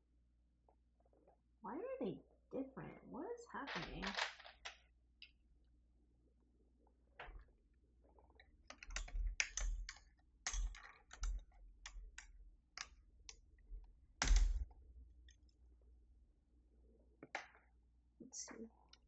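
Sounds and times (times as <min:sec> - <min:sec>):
keycaps clicking and tapping: 0:08.7 - 0:13.4.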